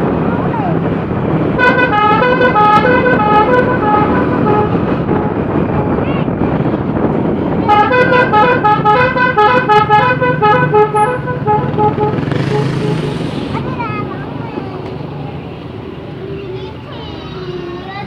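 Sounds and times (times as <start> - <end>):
engine and road rumble: 0.0 - 18.0
musical vehicle horn: 1.6 - 6.0, 7.7 - 13.5.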